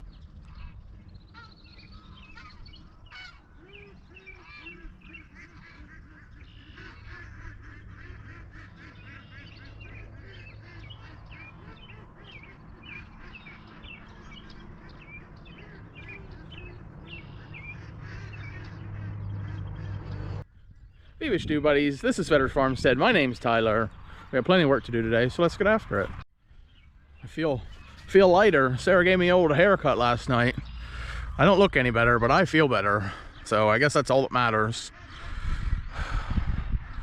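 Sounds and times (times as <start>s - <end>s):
waterfowl honking: 0.0s - 20.4s, 27.6s - 37.0s
steady low hum: 6.9s - 20.5s.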